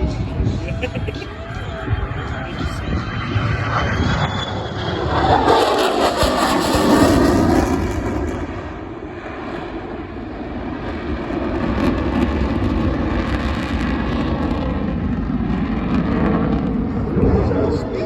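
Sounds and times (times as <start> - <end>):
low rumble: 0.0 - 9.4
jet passing: 0.0 - 18.0.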